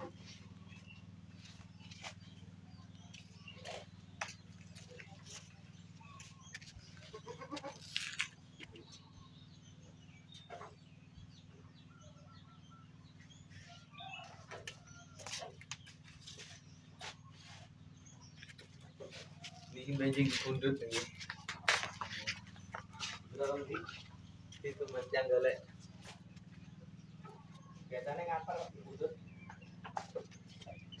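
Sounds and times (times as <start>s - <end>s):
goats bleating: 7.0s - 7.9s.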